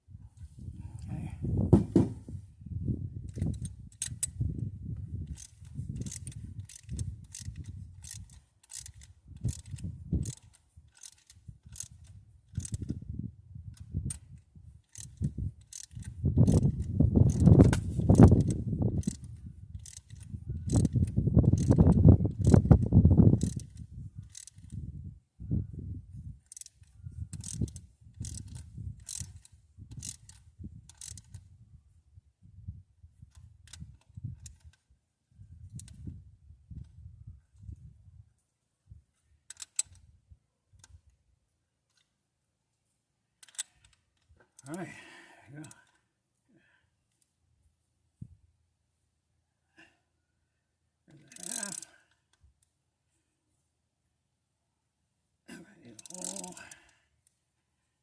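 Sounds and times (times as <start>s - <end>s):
heavy mechanical ratcheting: 3.2s - 4.4s, 5.1s - 13.0s, 13.8s - 24.8s, 26.4s - 31.4s, 51.2s - 52.2s, 55.9s - 56.9s
socket ratchet clicking: 3.3s - 4.4s, 5.2s - 13.0s, 14.9s - 24.8s, 26.5s - 31.4s, 39.5s - 40.0s, 43.4s - 44.0s, 51.3s - 52.0s, 55.9s - 56.9s.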